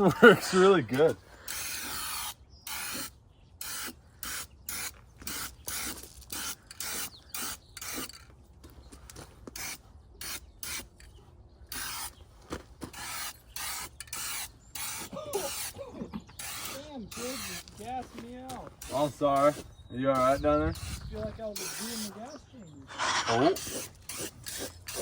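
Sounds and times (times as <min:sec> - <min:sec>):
spray paint can hissing: 0:01.5 - 0:08.2, 0:11.7 - 0:12.1, 0:12.9 - 0:15.7, 0:16.4 - 0:17.7, 0:21.6 - 0:22.1, 0:22.9 - 0:25.0.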